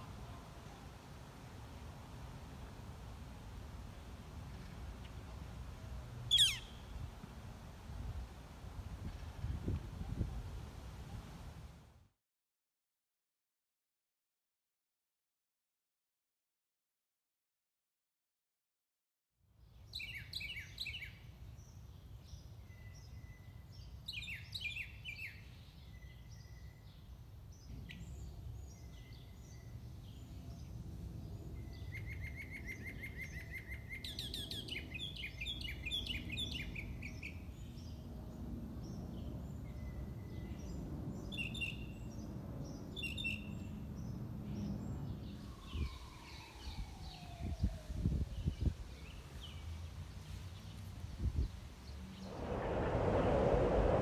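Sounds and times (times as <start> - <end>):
songbirds singing: 6.3 - 6.9, 19.7 - 38.1, 38.8 - 50.0
steady low rumble: 52.2 - 54.0.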